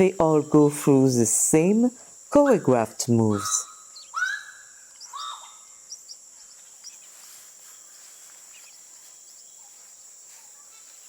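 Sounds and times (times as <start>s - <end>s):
high-pitched insect drone: 0.0s - 11.0s
bird calls: 2.3s - 11.0s.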